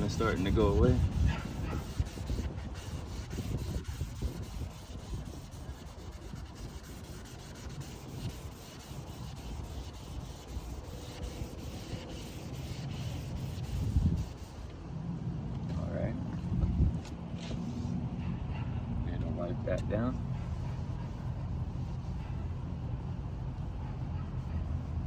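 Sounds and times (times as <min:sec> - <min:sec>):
sandpaper rubbing on plastic: 0:00.0 - 0:14.7, 0:20.3 - 0:25.0.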